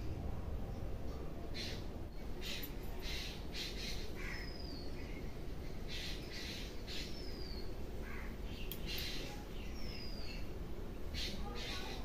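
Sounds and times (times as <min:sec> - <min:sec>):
steady low rumble: 0:00.0 - 0:05.8
birds giving harsh raspy calls: 0:01.6 - 0:04.9, 0:05.9 - 0:10.2.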